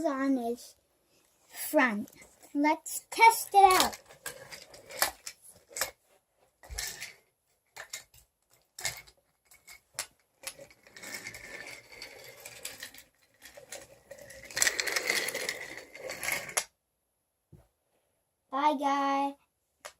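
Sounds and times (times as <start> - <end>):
toy train wheels rattling: 3.1 - 5.9, 10.4 - 16.6.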